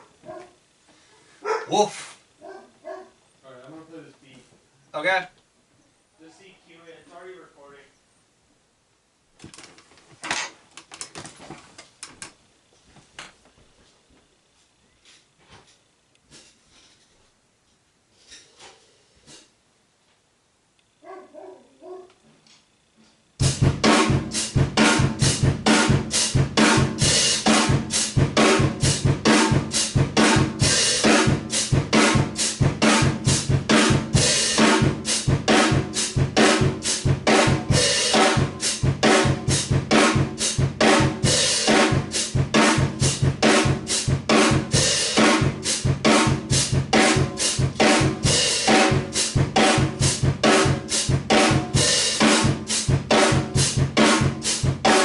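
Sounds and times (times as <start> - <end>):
drum kit playing steady beat: 23.4 - 55.0.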